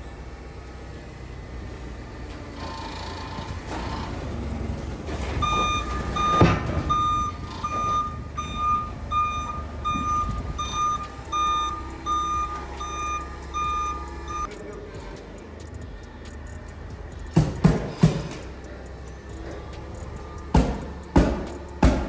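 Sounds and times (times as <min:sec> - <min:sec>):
diesel engine idling: 0:00.0 - 0:22.0
truck reverse alarm beeping: 0:01.4 - 0:14.9
loud thump: 0:05.4 - 0:08.6.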